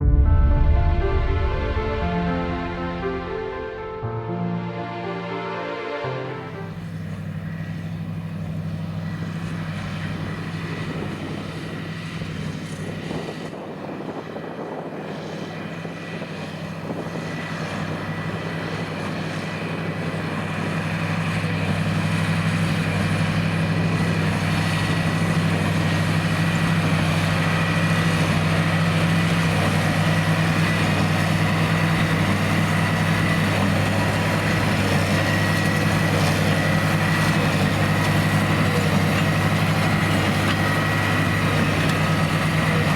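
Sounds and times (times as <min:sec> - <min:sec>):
tractor diesel engine under load: 0:06.7 - 0:42.9.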